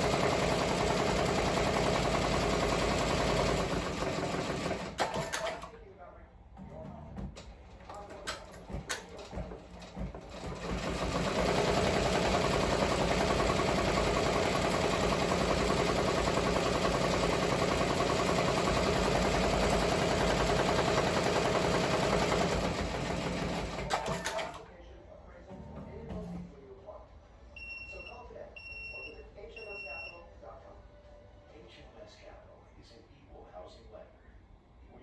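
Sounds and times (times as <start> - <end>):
embroidery machine stitching: 0.0 - 5.7, 6.6 - 24.7.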